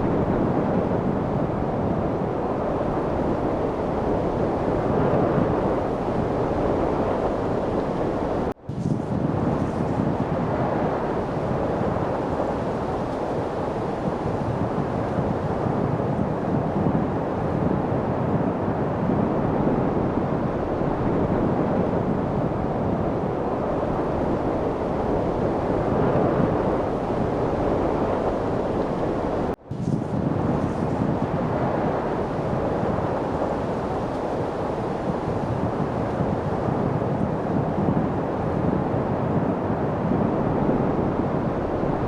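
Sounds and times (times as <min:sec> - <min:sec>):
steady wind rushing: 0:00.0 - 0:42.0.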